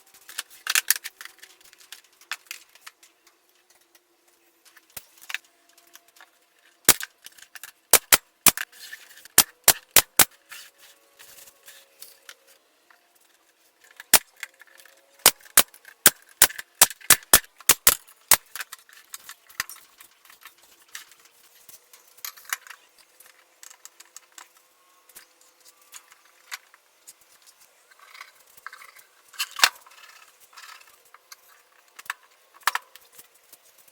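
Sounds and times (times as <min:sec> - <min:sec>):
nail gun firing: 0:06.9 - 0:07.1, 0:07.9 - 0:08.6, 0:09.4 - 0:10.4, 0:15.2 - 0:18.6.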